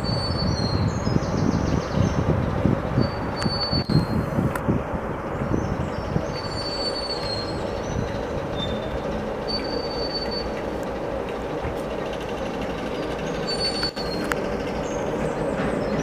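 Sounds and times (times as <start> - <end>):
high wheel squeals: 0.0 - 1.6, 3.0 - 4.3, 5.8 - 10.8, 11.8 - 16.0
train wheels rumbling on rails: 0.0 - 16.0.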